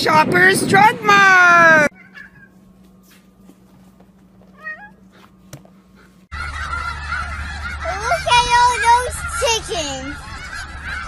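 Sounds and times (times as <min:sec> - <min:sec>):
cat meowing: 0:01.9 - 0:02.5, 0:04.5 - 0:05.0
geese honking: 0:06.0 - 0:11.0.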